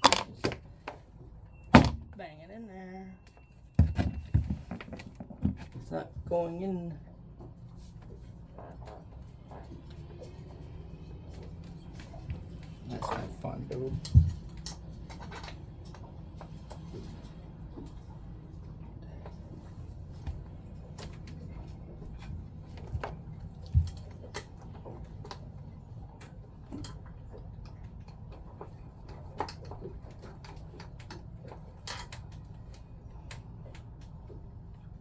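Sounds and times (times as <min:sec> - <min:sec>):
pump parts clicking and knocking: 0:00.0 - 0:01.1, 0:01.7 - 0:02.2, 0:03.8 - 0:05.9, 0:11.4 - 0:18.1, 0:20.2 - 0:34.6.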